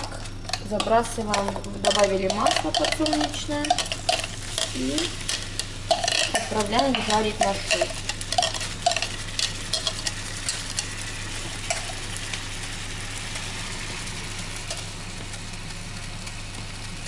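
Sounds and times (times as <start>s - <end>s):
utensil clicking against bowl: 0.0s - 10.9s
onion sizzling in oil: 0.0s - 17.0s.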